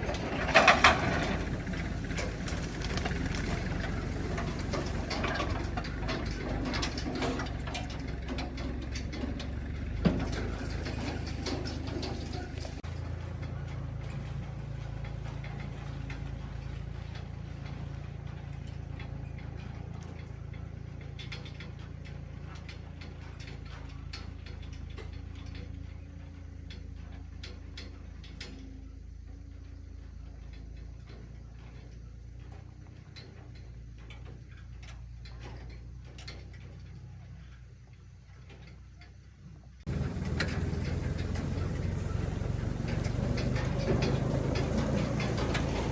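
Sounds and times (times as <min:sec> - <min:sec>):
clicks and light knocks: 0:00.0 - 0:12.9, 0:39.9 - 0:45.9
engine running at low speed: 0:00.0 - 0:45.9.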